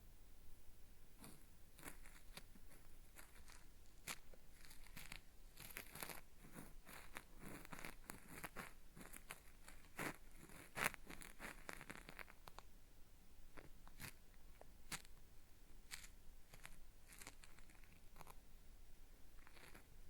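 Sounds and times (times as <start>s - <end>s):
cotton swab scraping microphone: 1.2s - 12.6s, 13.6s - 14.2s, 15.9s - 18.4s, 19.4s - 19.9s.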